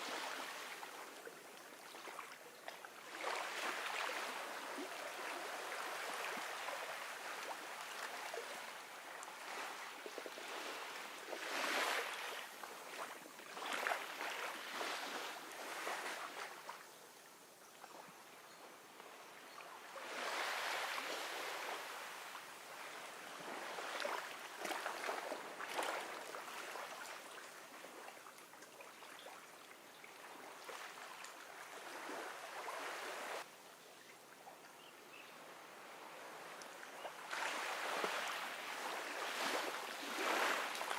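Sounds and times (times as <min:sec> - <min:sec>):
ocean waves washing onto beach: 0:19.9 - 0:28.1, 0:35.6 - 0:40.9.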